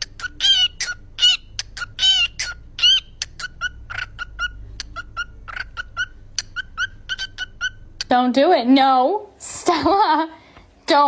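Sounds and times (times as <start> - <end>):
parrot clucking: 0.0 - 8.1.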